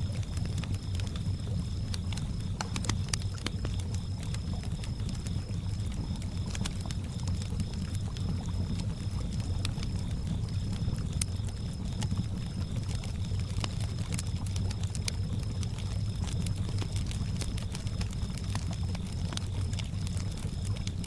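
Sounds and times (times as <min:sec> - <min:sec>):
campfire crackling and popping: 0:00.0 - 0:21.0
cricket chirping trill: 0:00.0 - 0:21.0.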